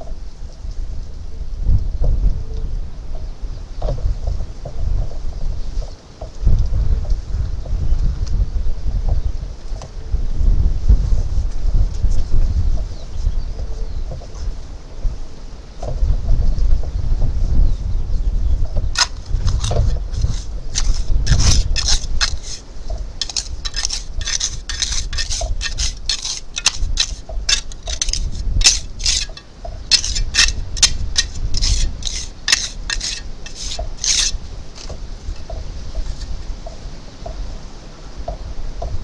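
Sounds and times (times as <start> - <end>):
hand tool scraping masonry: 19.0 - 36.3.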